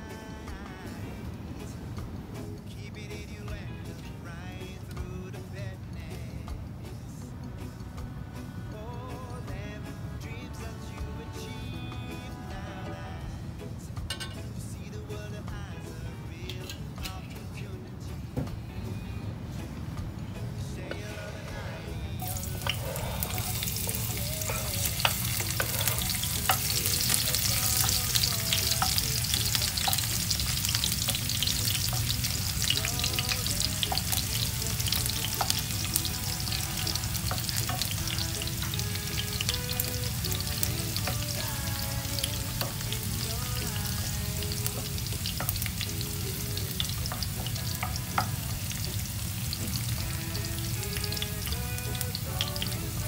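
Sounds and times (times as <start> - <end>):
wooden spatula stirring: 22.2 - 50.1
garlic sizzling in hot oil: 22.2 - 53.0.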